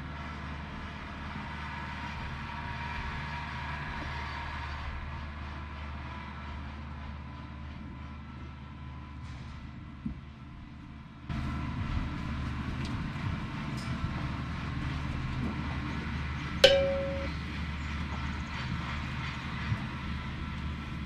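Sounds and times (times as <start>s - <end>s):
sharp metallic clang: 16.6s - 17.4s.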